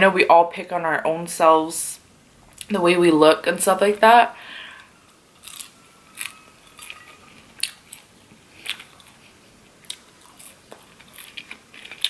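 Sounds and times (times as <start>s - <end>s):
chewing with crisp crunches: 4.8s - 12.0s.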